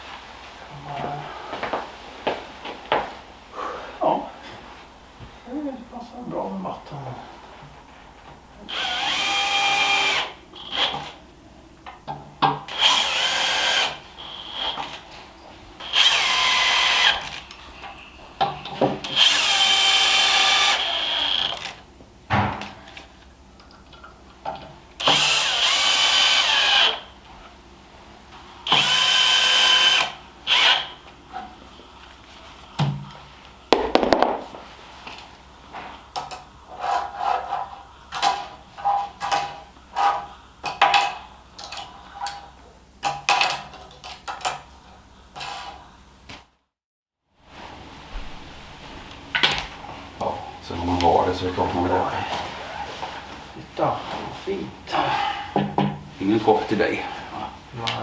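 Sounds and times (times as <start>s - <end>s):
small electric motor whirring: 8.7s - 10.9s, 12.7s - 14.8s, 15.8s - 17.5s, 19.0s - 21.8s, 25.0s - 27.1s, 28.7s - 30.9s.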